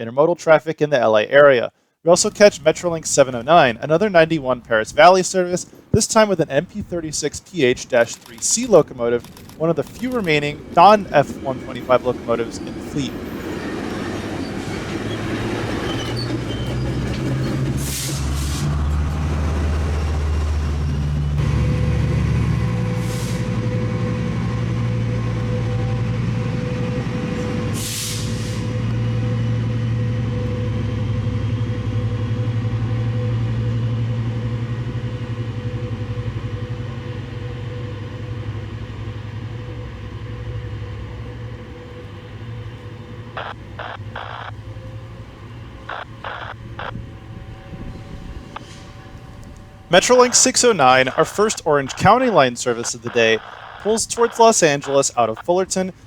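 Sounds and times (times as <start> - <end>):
diesel locomotive engine: 0.0 - 56.0
air brake hisses: 17.8 - 18.7, 23.0 - 23.6, 27.7 - 28.8.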